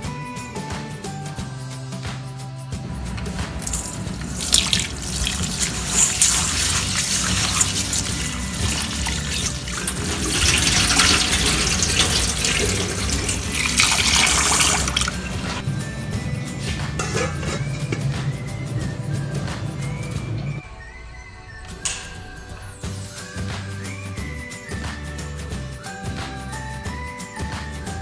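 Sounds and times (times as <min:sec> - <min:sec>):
tap water running into bowl: 0:02.9 - 0:15.7, 0:16.8 - 0:20.5
hand swishing rice: 0:03.2 - 0:15.6.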